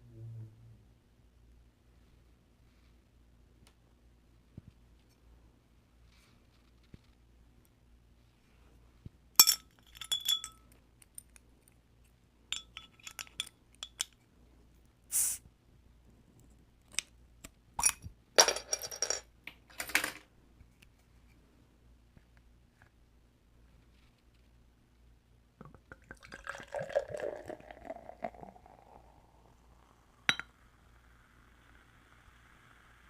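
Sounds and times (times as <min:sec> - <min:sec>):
oyster shells clinking on a plate: 0:09.4 - 0:10.7, 0:12.6 - 0:14.2.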